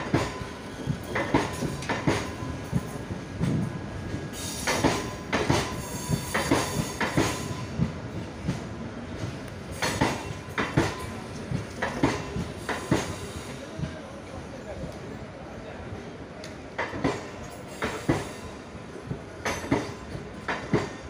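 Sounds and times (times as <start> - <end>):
train rolling rumble: 0.0 - 21.0
wheels clacking over rail joints: 4.4 - 8.6, 9.2 - 13.2.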